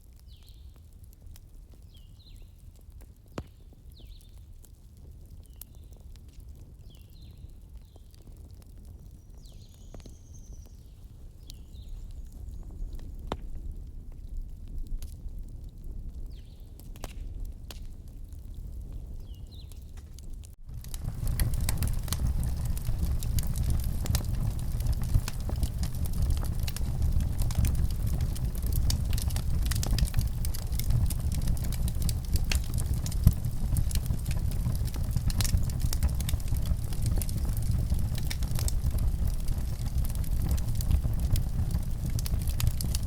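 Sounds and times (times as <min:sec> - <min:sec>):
wood fire crackling: 0:00.0 - 0:43.0
low rumble: 0:20.6 - 0:43.0.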